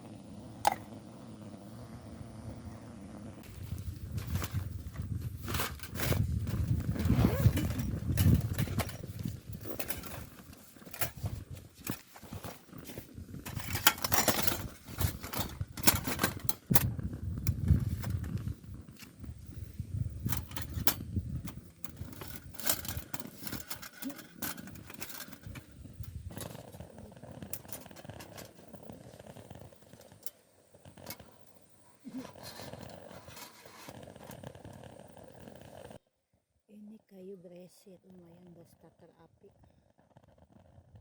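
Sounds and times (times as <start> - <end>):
hard objects clattering and scraping: 3.4 - 19.2, 20.2 - 36.0.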